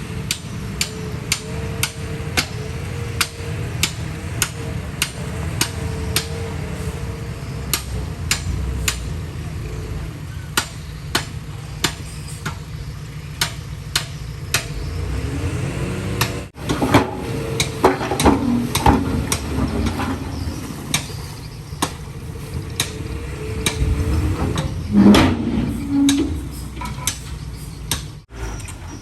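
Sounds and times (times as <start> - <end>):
diesel machinery running: 0.0 - 29.0
sharp knocks: 0.3 - 6.6, 7.7 - 9.1, 22.7 - 28.2.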